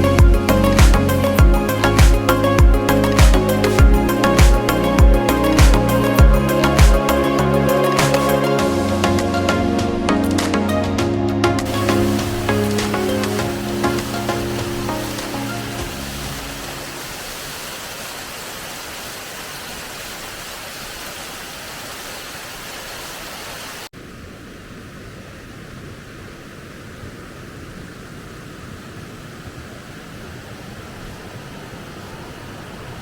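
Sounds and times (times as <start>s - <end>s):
waterfall rushing: 11.6s - 33.0s.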